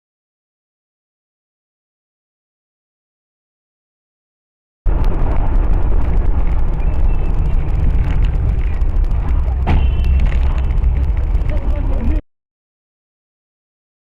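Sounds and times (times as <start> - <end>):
vehicle engine and road rumble: 4.9 - 12.2
sharp knock: 9.6 - 10.3.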